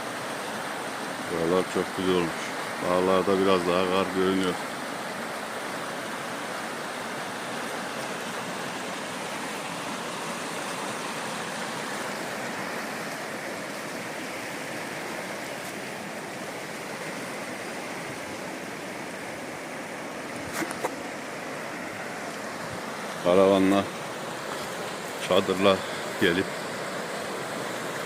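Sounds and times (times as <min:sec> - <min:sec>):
running water rushing: 0:00.0 - 0:28.0.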